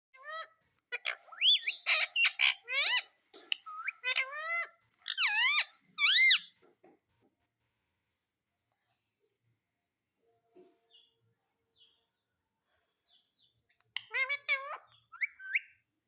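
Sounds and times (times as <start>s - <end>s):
parrot shrill squeaky calls: 0.2s - 6.5s, 14.0s - 15.8s.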